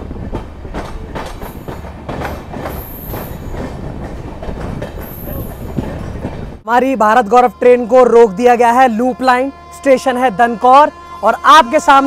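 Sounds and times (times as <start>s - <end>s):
clickety-clack over rail joints: 0.0s - 6.6s
train wheels rumbling on rails: 0.0s - 6.7s.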